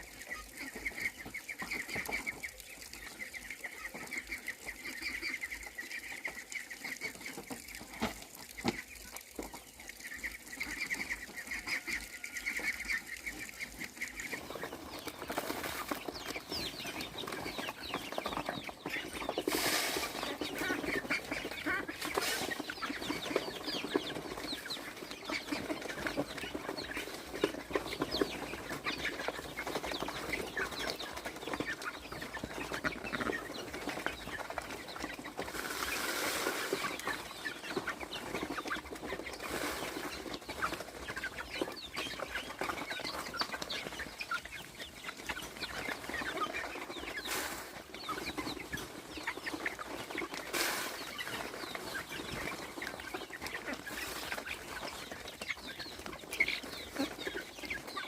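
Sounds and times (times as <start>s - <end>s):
chickens clucking and chirping: 0.0s - 58.0s
wings flapping: 10.6s - 44.6s.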